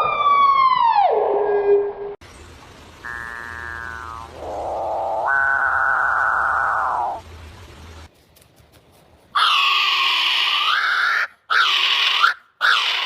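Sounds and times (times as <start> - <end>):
animal calling: 3.0 - 7.2, 9.4 - 13.0.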